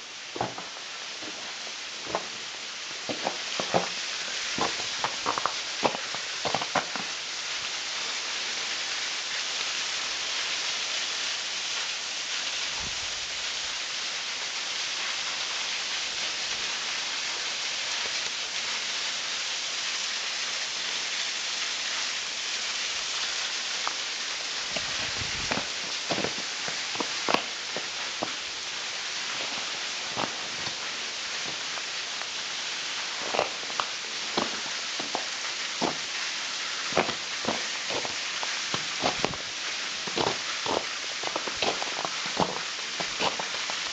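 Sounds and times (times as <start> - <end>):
waterfall pouring and splashing: 0.0 - 43.9.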